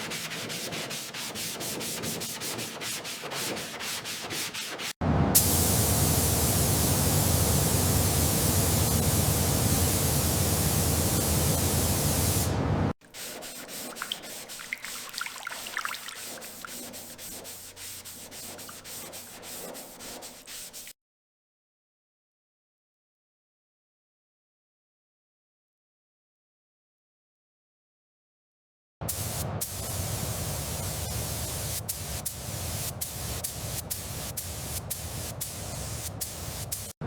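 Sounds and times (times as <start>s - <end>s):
hand sanding strokes: 0.0s - 5.0s, 13.0s - 20.9s, 30.8s - 37.0s
spraying hiss: 5.4s - 12.6s, 29.1s - 37.0s.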